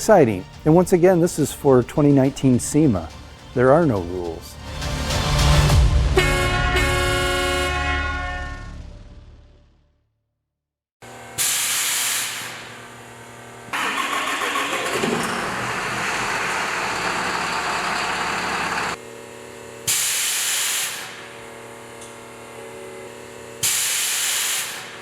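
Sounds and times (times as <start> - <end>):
truck engine running: 13.8 - 19.0.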